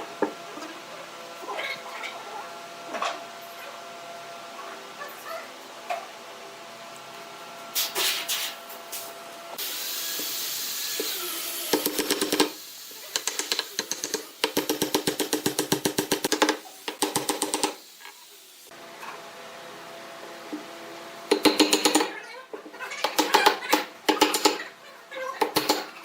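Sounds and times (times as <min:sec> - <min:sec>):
woodworking tool hiss: 0:07.8 - 0:15.7, 0:16.3 - 0:18.8.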